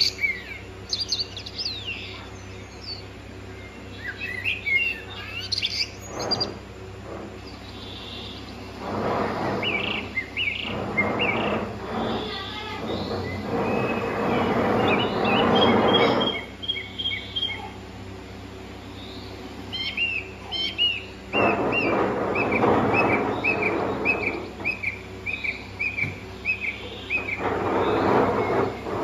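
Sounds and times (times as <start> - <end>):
bird chirping: 0.0 - 6.6, 9.6 - 17.8, 18.8 - 28.8
loud rushing noise: 8.7 - 12.2.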